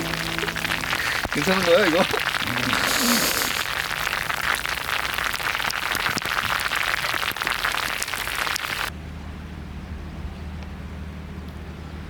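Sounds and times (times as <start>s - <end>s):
low steady hum: 0.0s - 2.6s
heavy rain falling: 0.0s - 8.9s.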